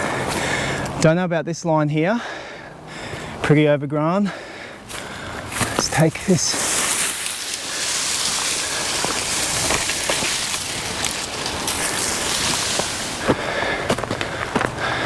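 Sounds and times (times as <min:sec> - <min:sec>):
footfalls on loose ground: 0:04.9 - 0:15.0
leaves and branches brushing: 0:04.9 - 0:15.0
twigs snapping: 0:04.9 - 0:15.0.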